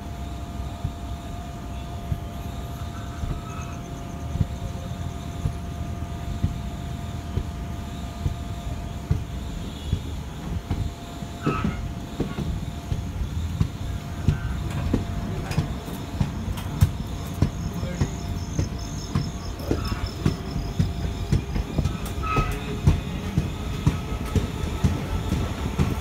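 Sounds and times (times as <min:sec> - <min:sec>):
train rumbling: 0:00.0 - 0:26.0
wheels clacking over rail joints: 0:07.2 - 0:26.0.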